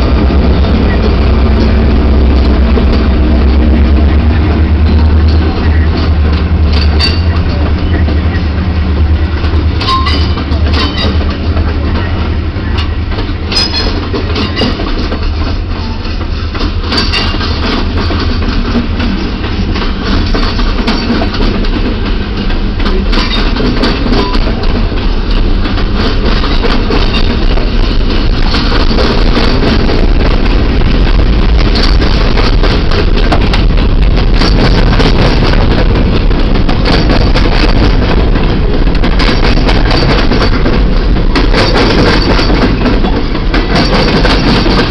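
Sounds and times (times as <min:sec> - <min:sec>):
diesel locomotive drone: 0:00.0 - 0:44.9
train wheels clicking over rail joints: 0:00.0 - 0:44.9.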